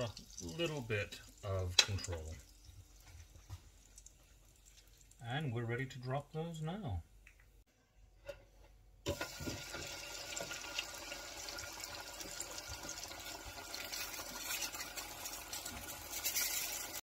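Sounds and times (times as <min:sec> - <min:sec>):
food sizzling in deep fryer oil: 0:09.1 - 0:17.0.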